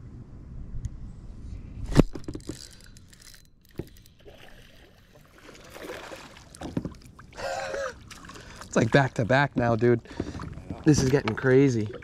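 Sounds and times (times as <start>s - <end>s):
gear clicks and rattles: 2.0s - 4.2s
faint watery rustle: 2.6s - 12.0s.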